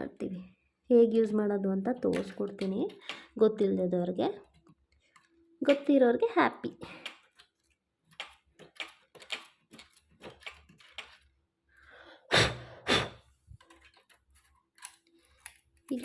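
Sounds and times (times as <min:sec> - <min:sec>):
seam ripper ticking and scratching: 0:06.8 - 0:11.2.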